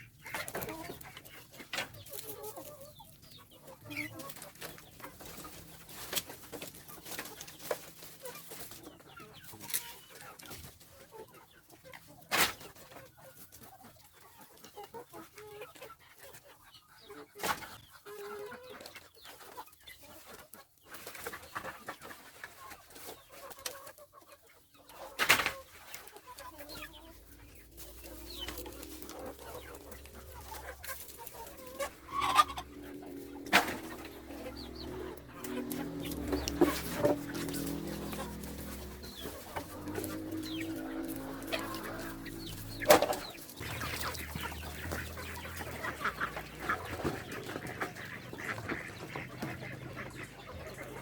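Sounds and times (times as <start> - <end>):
chickens clucking: 0.0 - 51.0
steady low hum: 26.6 - 47.4.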